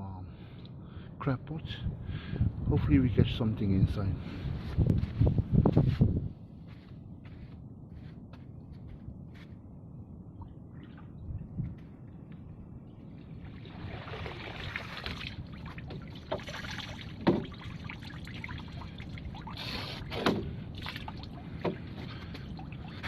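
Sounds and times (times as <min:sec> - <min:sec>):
water splashing and trickling: 0:13.0 - 0:23.0.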